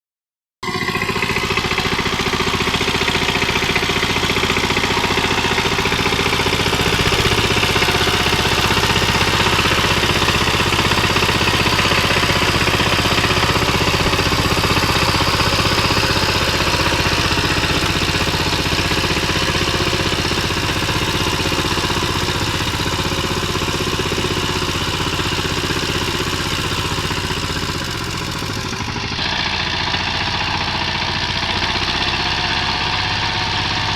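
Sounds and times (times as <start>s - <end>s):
clattery diesel engine running: 0.6s - 33.9s.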